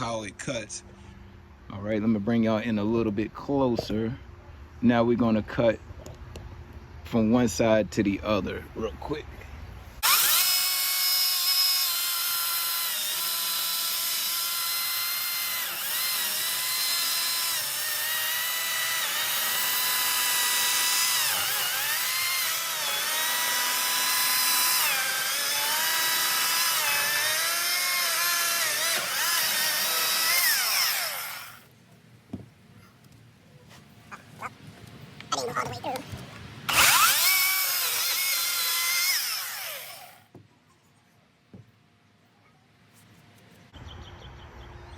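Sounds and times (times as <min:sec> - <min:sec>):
electric chainsaw cutting log: 0:10.0 - 0:31.7, 0:36.7 - 0:40.4.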